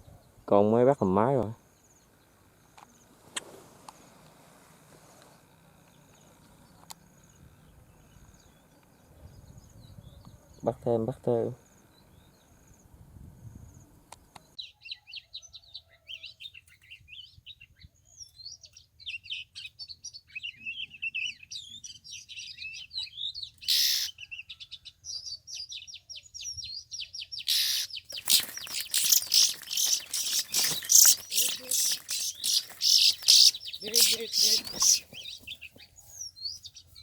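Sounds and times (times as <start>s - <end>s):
bird singing chirps and whistles: 16.4s - 24.1s, 25.6s - 37.0s
rapid rustling and fluttering: 28.1s - 35.9s
loud rustle: 28.2s - 35.8s.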